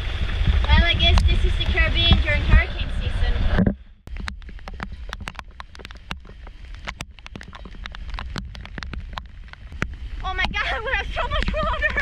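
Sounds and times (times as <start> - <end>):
raindrops ticking close by: 0.0 - 2.8, 4.0 - 12.0
wind rumble on microphone: 0.0 - 12.0
heavy rain falling: 4.2 - 12.0.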